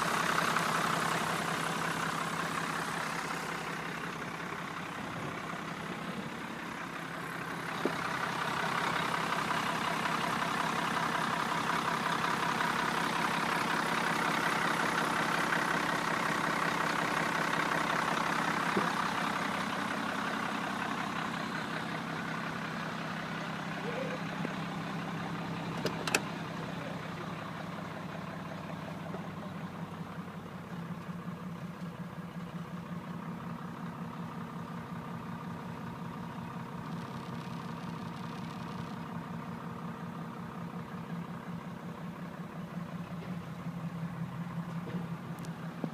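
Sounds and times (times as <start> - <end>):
truck engine idling: 0.0 - 45.9.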